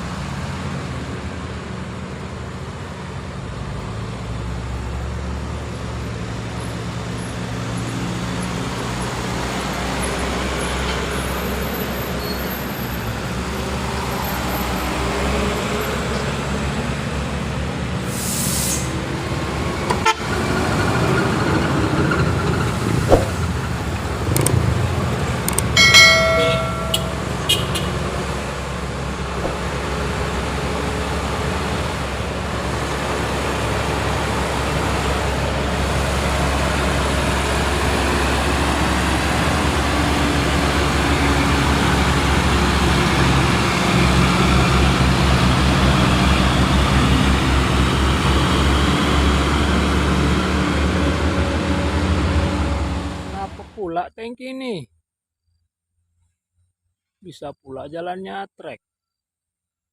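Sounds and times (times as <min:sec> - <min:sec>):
vehicle horn: 0:19.9 - 0:20.3, 0:26.9 - 0:28.0.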